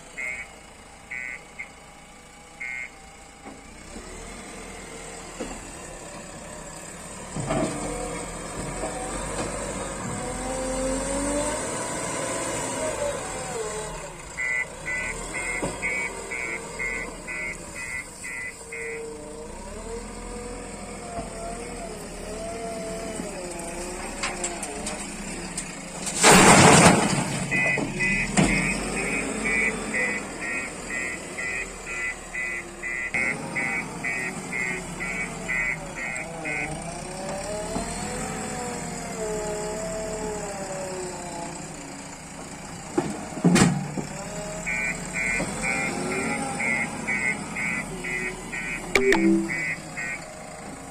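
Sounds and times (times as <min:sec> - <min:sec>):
diesel engine revving: 0:00.0 - 0:50.9
reversing alarm beeping: 0:00.1 - 0:01.8, 0:02.6 - 0:03.0, 0:14.4 - 0:19.2, 0:27.5 - 0:36.8, 0:44.6 - 0:50.2.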